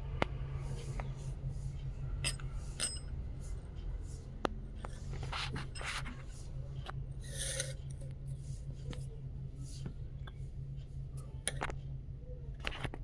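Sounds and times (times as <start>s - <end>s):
low hum: 0.0s - 13.0s
metallic ting: 2.2s - 3.2s
rustling and scratching: 3.4s - 10.1s.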